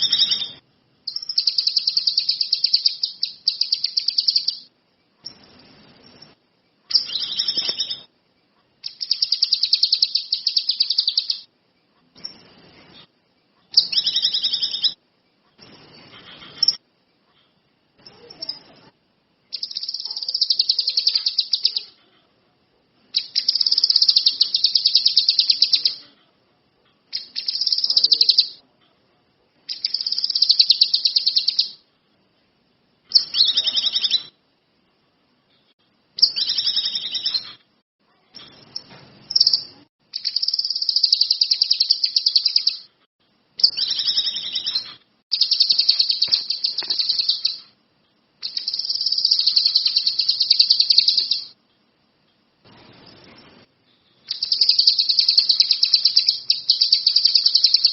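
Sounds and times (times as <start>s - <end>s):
songbird trilling: 0.0s - 5.5s, 6.2s - 8.1s, 8.8s - 11.5s, 13.7s - 15.0s, 19.5s - 22.0s, 23.2s - 26.0s, 27.1s - 28.6s, 29.7s - 31.8s, 33.1s - 34.4s, 36.2s - 37.6s, 38.4s - 42.9s, 43.6s - 47.7s, 48.4s - 51.6s, 54.3s - 57.9s.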